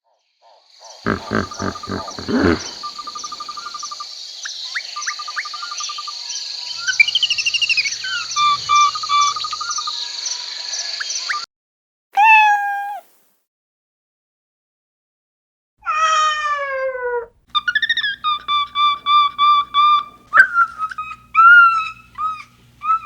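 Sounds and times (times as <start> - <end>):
birds calling: 1.1 - 3.8, 6.8 - 9.9, 17.6 - 23.0
insects trilling and chirping: 1.1 - 11.4.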